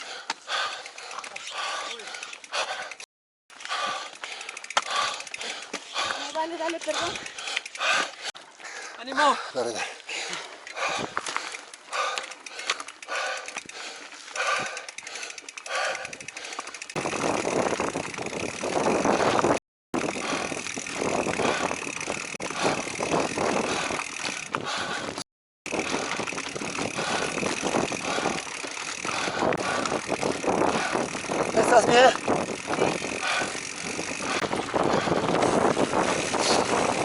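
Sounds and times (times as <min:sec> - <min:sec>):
rider panting: 0:00.0 - 0:37.0
tyres on dirt trail: 0:00.0 - 0:37.0
wind rush: 0:17.0 - 0:37.0.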